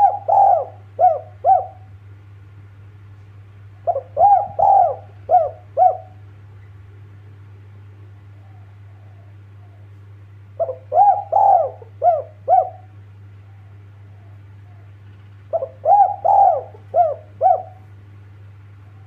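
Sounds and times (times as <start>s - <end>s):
dove cooing: 0.0s - 2.0s, 3.8s - 6.3s, 8.2s - 10.0s, 10.6s - 18.0s.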